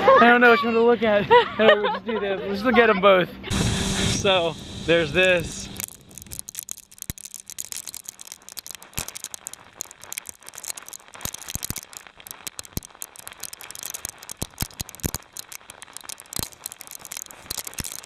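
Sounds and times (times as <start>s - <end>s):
ice pellets rattling on clothing: 5.7s - 18.0s.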